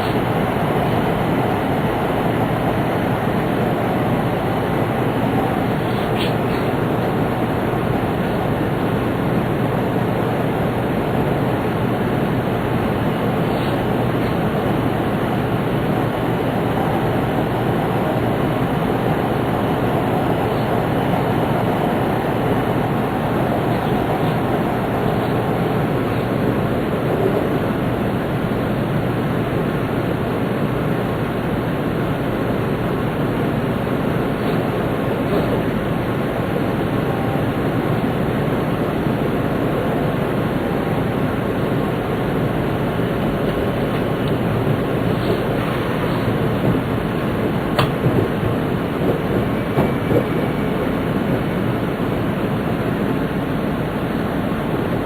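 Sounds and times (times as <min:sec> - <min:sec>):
rushing air: 0:00.0 - 0:29.0, 0:40.8 - 0:55.0
train running at speed inside cabin: 0:00.0 - 0:55.0.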